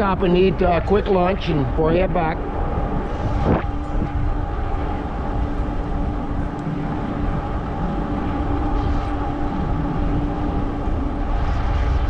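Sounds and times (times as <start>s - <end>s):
rumble of fat tyres: 0.0s - 12.0s
wind on microphone: 0.0s - 12.0s.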